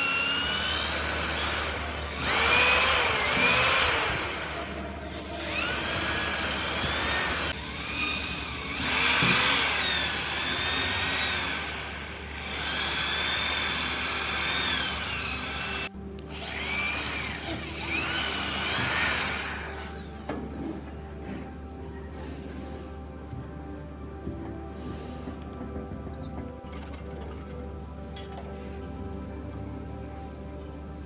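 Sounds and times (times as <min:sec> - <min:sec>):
power tool grinding steel: 0:00.0 - 0:20.8.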